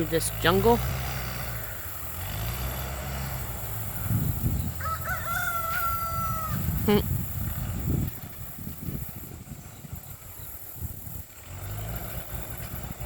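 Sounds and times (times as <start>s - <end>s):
bulldozer engine rumble: 0.0s - 13.0s
rooster crowing: 4.6s - 7.0s.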